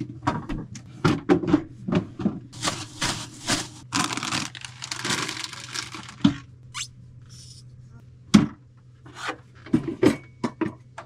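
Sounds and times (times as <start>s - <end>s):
rustling and crinkling: 2.6s - 6.5s.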